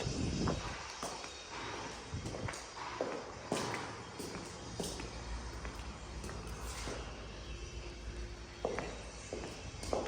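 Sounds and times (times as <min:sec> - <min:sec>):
soft footsteps: 0:08.6 - 0:10.0.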